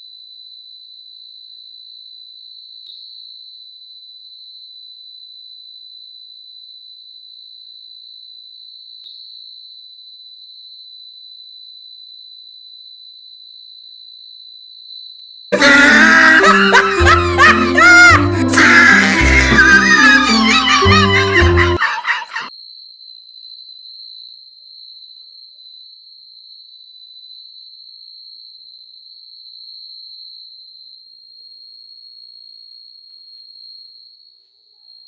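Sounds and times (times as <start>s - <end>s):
cartoonish music with sliding pitches: 15.6s - 22.5s.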